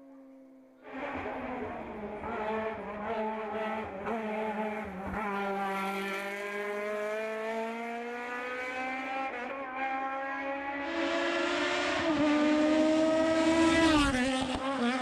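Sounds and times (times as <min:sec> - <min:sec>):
race car engine accelerating: 0:00.8 - 0:15.0.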